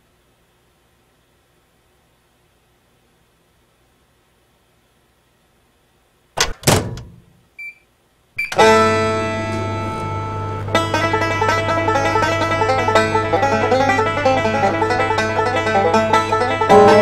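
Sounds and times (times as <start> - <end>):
microwave door thunks: 6.4 - 7.3
short electronic keypad beep: 8.4 - 8.6
bluegrass banjo music: 8.6 - 17.0.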